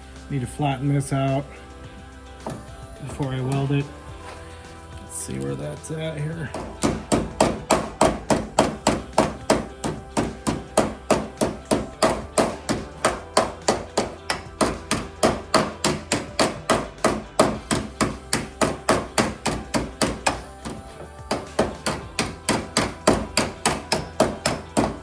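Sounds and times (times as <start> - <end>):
hammer striking steel: 6.5 - 25.0.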